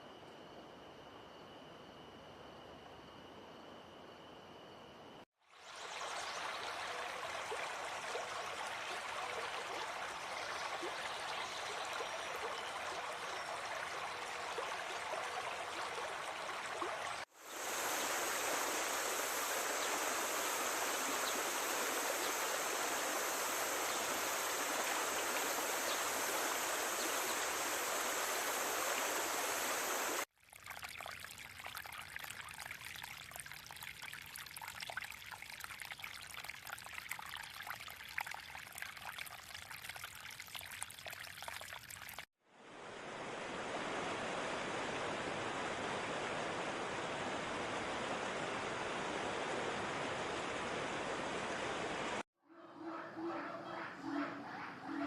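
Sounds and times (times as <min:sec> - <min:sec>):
stream water rushing: 0:05.7 - 0:30.3, 0:42.6 - 0:52.2
steady high hiss: 0:17.3 - 0:30.3.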